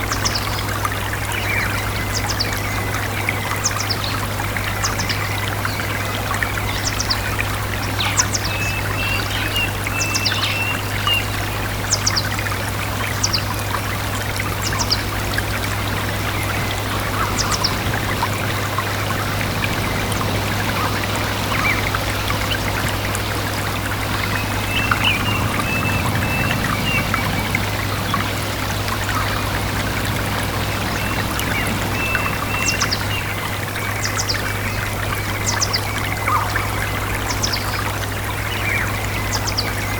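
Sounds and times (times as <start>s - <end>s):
stream trickling and babbling: 0.0s - 39.9s
low bird chirping notes: 14.6s - 36.6s.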